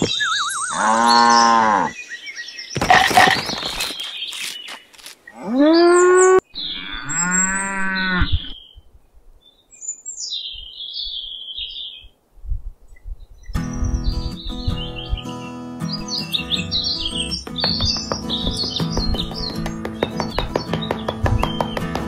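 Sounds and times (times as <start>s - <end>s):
faint bird chirps: 0.0s - 12.2s, 12.9s - 19.6s
cow mooing: 0.7s - 2.0s, 5.3s - 8.5s
sharp knocks: 17.4s - 22.0s.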